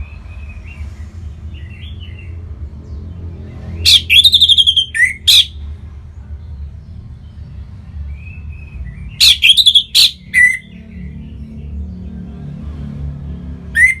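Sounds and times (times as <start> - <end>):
thrush singing: 3.8 - 5.6, 9.1 - 12.3
thin whistle: 13.8 - 14.0.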